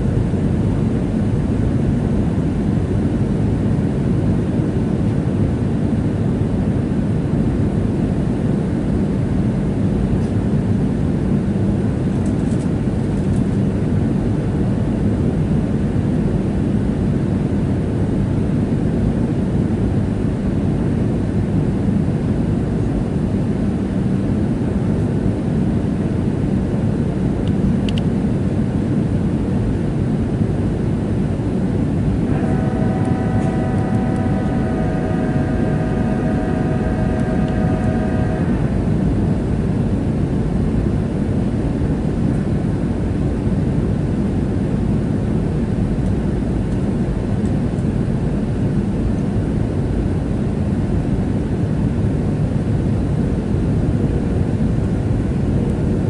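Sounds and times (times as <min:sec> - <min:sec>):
airliner cabin engine roar: 0:00.0 - 0:56.0
steady tones: 0:31.6 - 0:41.2.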